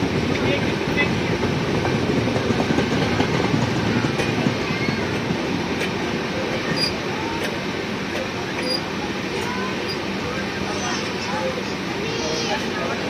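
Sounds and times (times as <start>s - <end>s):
train wheels rumbling on track: 0.0s - 13.0s
faint wheel squeals: 6.7s - 7.0s, 8.6s - 8.9s.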